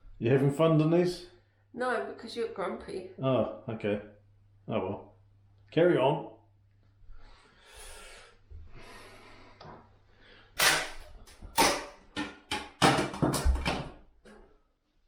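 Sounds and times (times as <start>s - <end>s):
sharp knocks and cracks: 10.6s - 14.0s.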